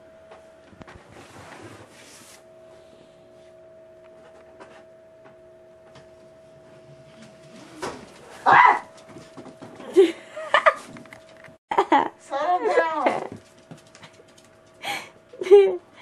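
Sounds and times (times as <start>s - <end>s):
faint steady hum: 0.0s - 8.4s.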